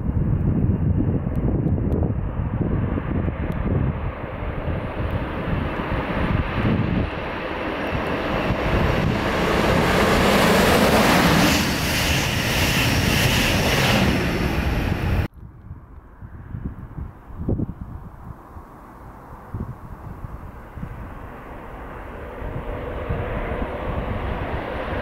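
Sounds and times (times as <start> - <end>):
wind on microphone: 0.0 - 25.0
train passing on rails: 5.3 - 15.3.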